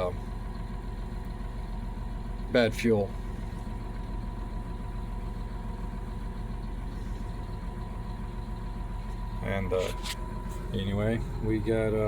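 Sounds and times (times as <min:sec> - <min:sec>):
faint steady whine: 0:00.0 - 0:12.0
tractor diesel engine idling: 0:00.0 - 0:12.0.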